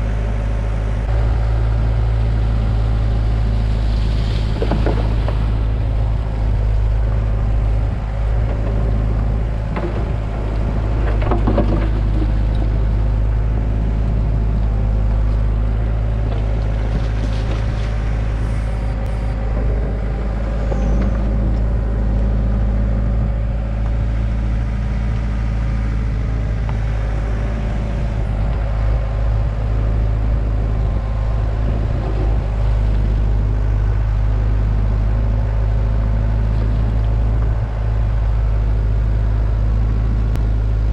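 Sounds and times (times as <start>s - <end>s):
excavator diesel engine running: 0.0s - 40.9s
bucket scraping and knocking dirt: 8.5s - 12.8s.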